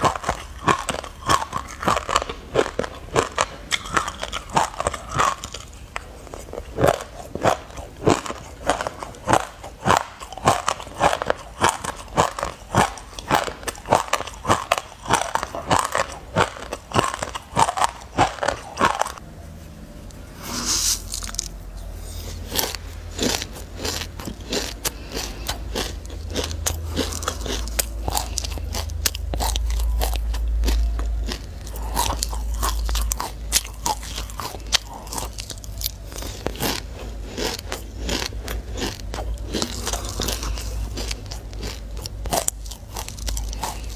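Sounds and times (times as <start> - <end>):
chewing crunchy seeds: 0.0 - 19.2, 20.0 - 43.9
brief high scrape: 20.3 - 21.2.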